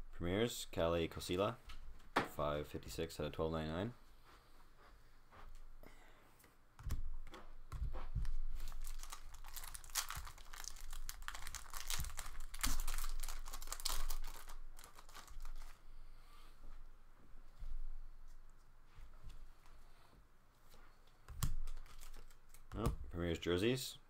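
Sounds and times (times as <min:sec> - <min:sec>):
foil wrapper crinkling and tearing: 0:08.2 - 0:15.8, 0:21.4 - 0:22.8.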